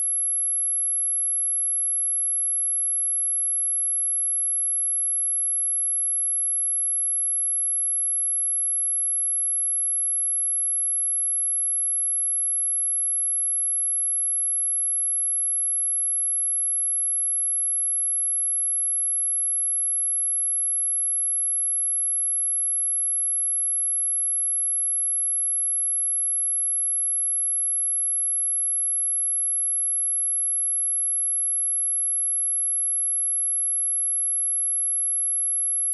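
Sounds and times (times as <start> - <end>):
high-pitched sine test tone: 0.0 - 3.0, 10.8 - 35.9.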